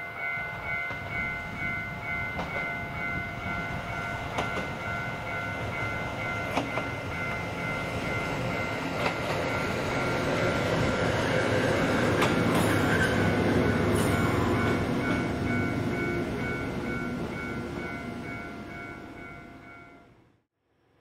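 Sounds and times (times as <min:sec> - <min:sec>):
railcar engine and wheels passing: 0:00.0 - 0:20.4
wheels clicking over rail joints: 0:04.2 - 0:04.8, 0:06.4 - 0:15.3.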